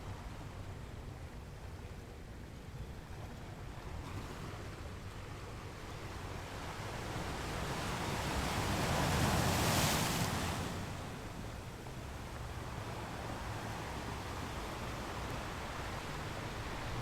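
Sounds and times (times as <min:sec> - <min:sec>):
ocean waves breaking: 0:06.0 - 0:17.0.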